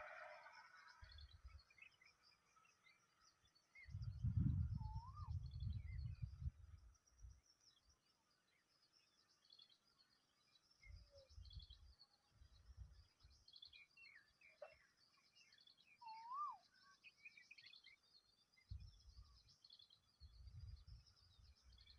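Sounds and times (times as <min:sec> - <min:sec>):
birds chirping: 0:00.0 - 0:21.9
whistled bird notes: 0:03.8 - 0:06.3, 0:13.4 - 0:18.0
low rumble on microphone: 0:03.8 - 0:06.8.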